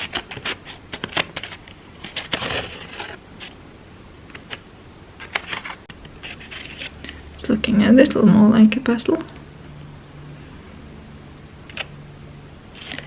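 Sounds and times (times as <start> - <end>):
paper rustle: 0.0 - 3.6, 5.2 - 7.2.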